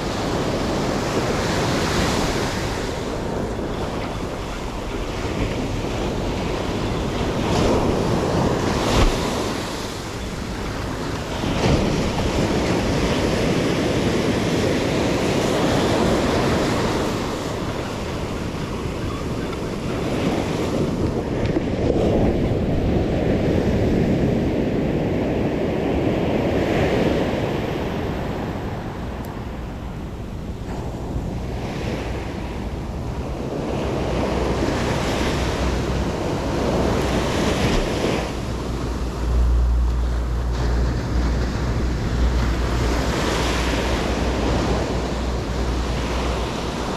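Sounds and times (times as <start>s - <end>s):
sea surf breaking: 0.0s - 46.9s
wind rumbling on microphone: 0.0s - 46.9s.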